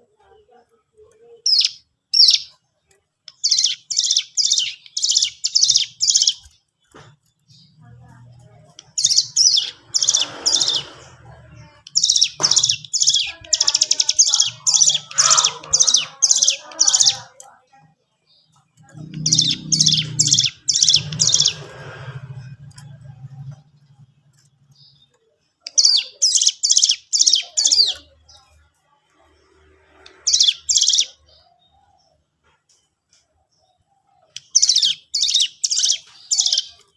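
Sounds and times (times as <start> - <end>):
bird singing rapid high notes: 1.4 - 2.6, 3.3 - 6.6, 8.8 - 11.0, 11.7 - 17.3, 18.4 - 28.4, 29.9 - 31.4, 34.3 - 36.9.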